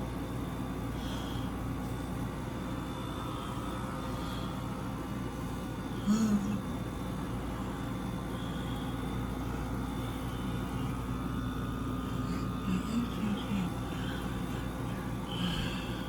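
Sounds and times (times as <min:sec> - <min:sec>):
window air conditioner humming: 0:00.0 - 0:16.0.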